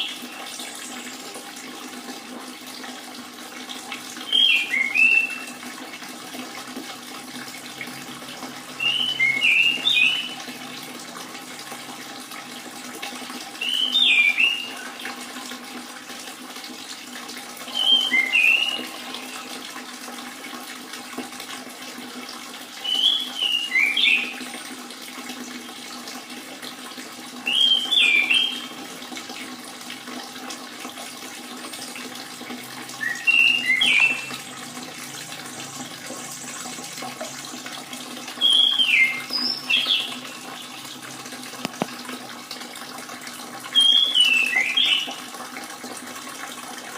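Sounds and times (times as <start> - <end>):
trickle of running water: 0.0 - 46.9
thrush whistling: 33.0 - 34.4.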